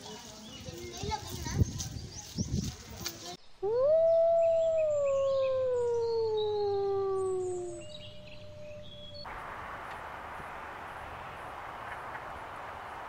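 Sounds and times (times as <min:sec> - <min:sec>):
small birds chirping: 0:00.0 - 0:09.3
steady outdoor hiss: 0:00.0 - 0:13.0
wolf howling: 0:03.6 - 0:09.3.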